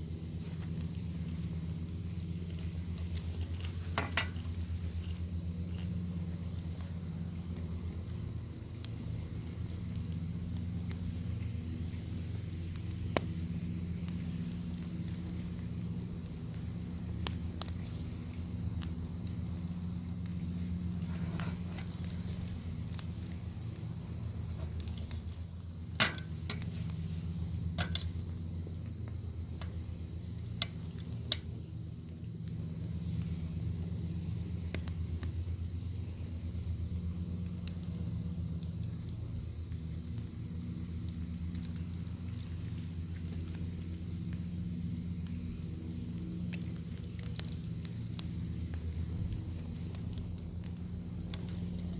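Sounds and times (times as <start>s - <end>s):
low steady rumble: 0.0s - 51.9s
wood fire crackling and popping: 0.0s - 51.9s
bacon sizzling: 0.1s - 34.0s.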